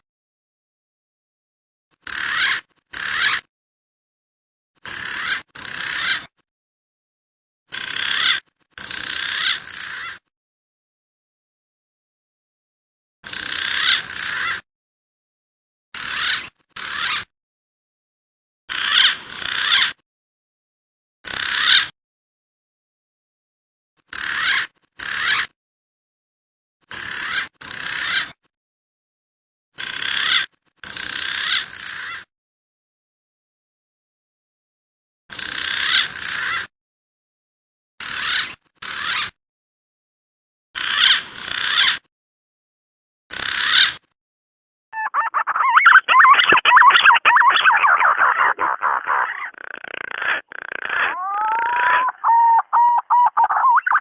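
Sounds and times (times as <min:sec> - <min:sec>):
pigeon call recording: 0:02.0 - 0:03.5, 0:04.8 - 0:06.3, 0:07.7 - 0:10.3, 0:13.2 - 0:14.6, 0:16.0 - 0:17.3, 0:18.7 - 0:20.0, 0:21.3 - 0:21.9, 0:24.1 - 0:25.5, 0:26.9 - 0:28.4, 0:29.8 - 0:32.3, 0:35.3 - 0:36.7, 0:38.0 - 0:39.4, 0:40.8 - 0:42.1, 0:43.3 - 0:44.0, 0:45.0 - 0:54.0.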